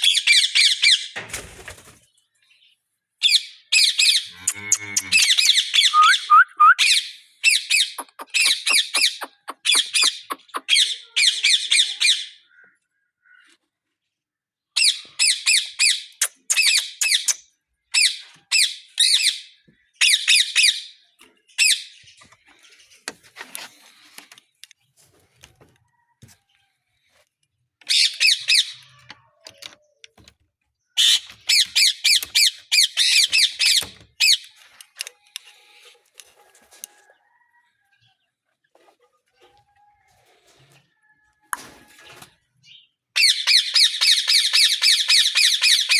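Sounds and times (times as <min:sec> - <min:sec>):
parrots squawking: 0:04.0 - 0:12.2.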